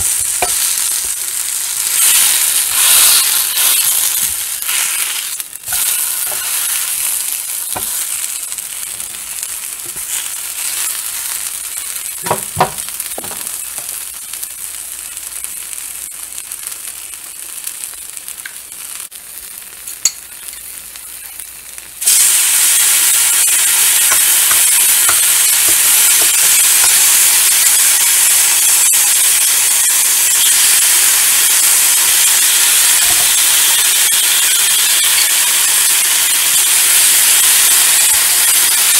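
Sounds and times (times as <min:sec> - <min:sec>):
food sizzling in a skillet: 0:00.0 - 0:38.9
utensil knocking on a pan: 0:12.2 - 0:13.4.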